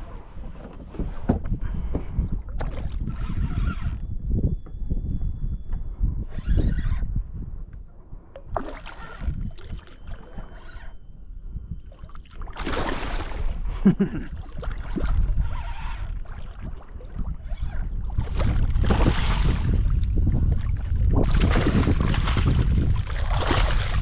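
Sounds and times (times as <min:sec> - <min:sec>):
water sloshing around kayak: 0:00.0 - 0:04.0, 0:08.3 - 0:11.2, 0:11.8 - 0:24.0
wind on microphone: 0:00.0 - 0:24.0.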